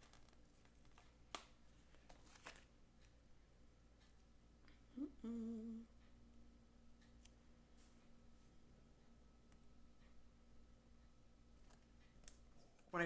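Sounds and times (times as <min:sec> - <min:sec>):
woman humming: 0:04.8 - 0:05.9.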